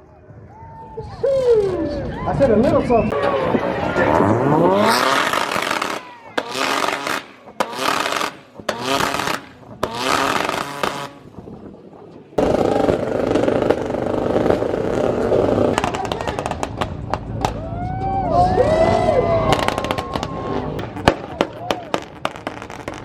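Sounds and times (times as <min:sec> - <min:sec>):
car engines revving: 0:03.0 - 0:23.0
engine on launch limiter: 0:03.1 - 0:11.4, 0:12.4 - 0:17.5
sharp exhaust pops: 0:04.8 - 0:11.5, 0:12.4 - 0:17.6.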